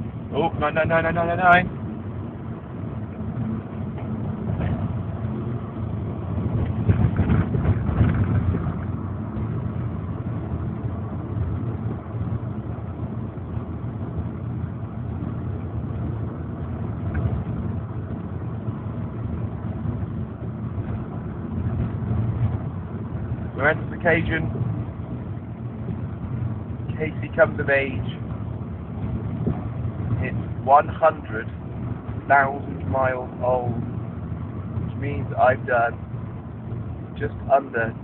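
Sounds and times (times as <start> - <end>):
car engine and road noise: 0.0 - 38.0.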